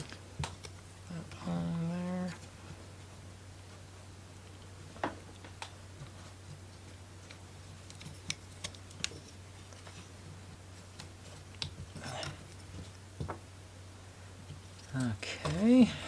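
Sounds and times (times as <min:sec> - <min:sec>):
low steady hum: 0:00.0 - 0:16.0
wooden pieces clicking together: 0:06.8 - 0:10.0.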